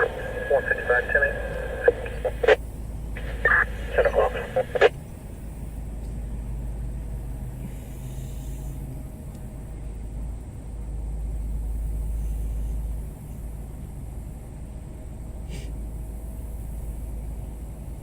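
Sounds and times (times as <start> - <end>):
road noise: 0.0 - 13.6
vehicle engine rumble: 0.0 - 18.0.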